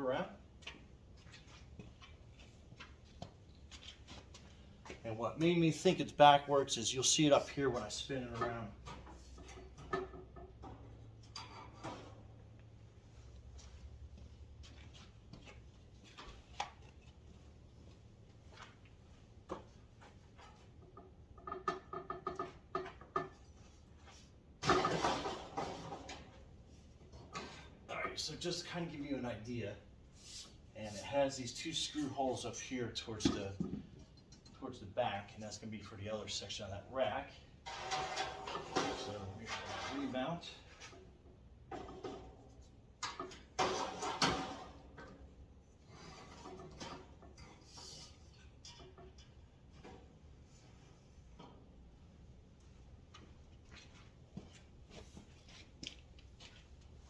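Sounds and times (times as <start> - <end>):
metal scraping and rattling: 5.7 - 12.4, 24.6 - 26.4, 37.6 - 41.1, 41.7 - 45.2, 45.8 - 50.7
metal rack knocks and clanks: 8.3 - 12.4, 24.6 - 26.4, 43.0 - 45.3
metal scraping and rubbing: 37.6 - 41.0, 45.8 - 49.4.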